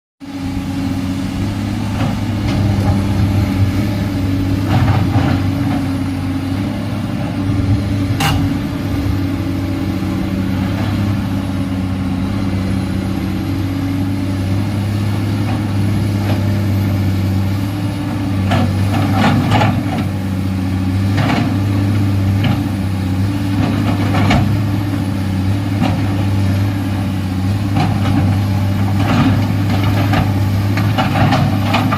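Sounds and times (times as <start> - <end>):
excavator diesel engine running: 0.2 - 31.9.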